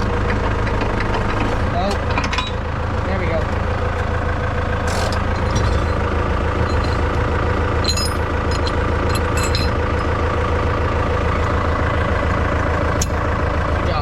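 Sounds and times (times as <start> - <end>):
tractor engine idling: 0.0 - 14.0
short metallic clinks: 7.8 - 10.1.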